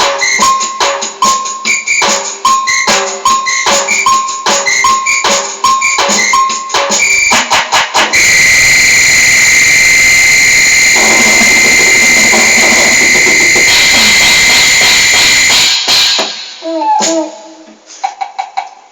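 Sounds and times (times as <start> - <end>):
electronic keyboard high note: 8.2 - 17.3.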